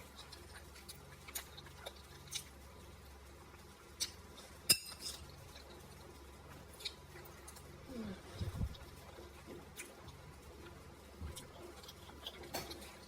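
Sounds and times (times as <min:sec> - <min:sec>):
chewing mouth clicks and smacks: 0:00.0 - 0:02.6.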